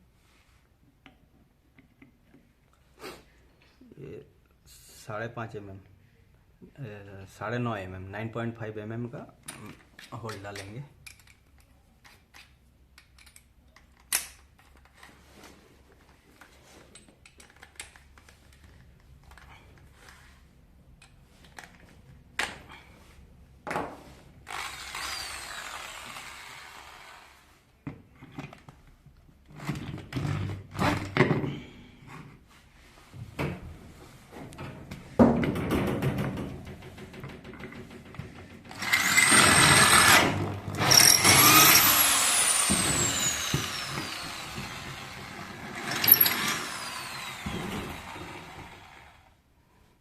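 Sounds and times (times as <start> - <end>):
tools clicking and knocking: 9.4 - 15.1, 16.8 - 19.9, 34.5 - 45.0, 45.9 - 48.2
electric drill running: 24.5 - 27.4, 38.7 - 49.3.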